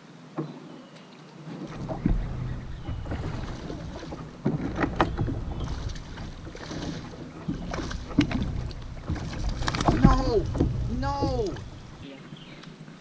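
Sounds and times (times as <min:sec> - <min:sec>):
wind rumbling on microphone: 0:01.6 - 0:13.0
knocks against kayak hull: 0:01.7 - 0:12.0.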